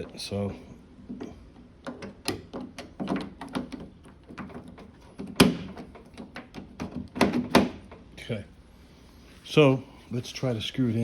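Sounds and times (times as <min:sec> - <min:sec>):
door lock clicks and knocks: 0:01.8 - 0:08.0.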